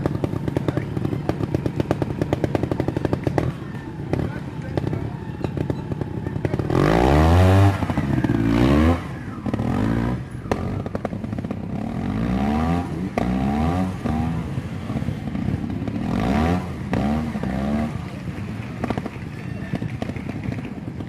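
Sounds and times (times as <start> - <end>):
motorcycle engine revving: 0.0 - 21.0
sharp clicks and clatters: 16.9 - 21.0.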